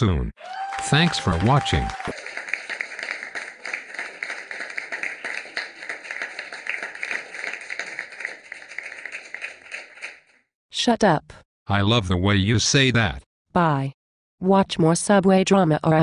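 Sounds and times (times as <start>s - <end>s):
audience applause: 0.4s - 10.3s.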